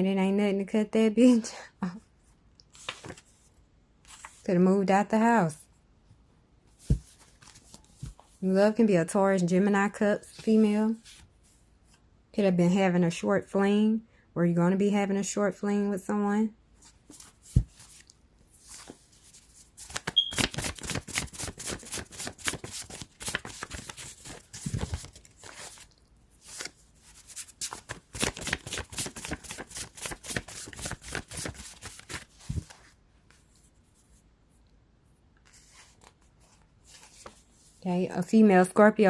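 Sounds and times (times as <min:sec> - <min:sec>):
cards being shuffled: 0:19.8 - 0:32.9.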